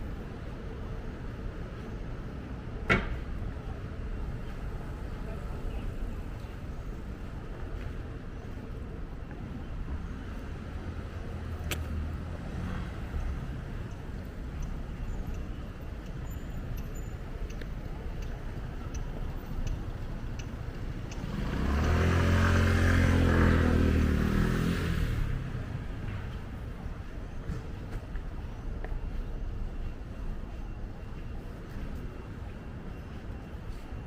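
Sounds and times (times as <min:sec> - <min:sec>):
street traffic hum: 0:00.0 - 0:34.0
motor vehicle passing close: 0:21.2 - 0:25.6.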